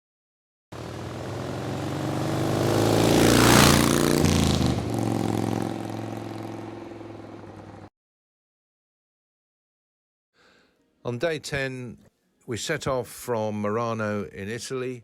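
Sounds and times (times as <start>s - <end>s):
motor vehicle passing by: 0.8s - 7.9s.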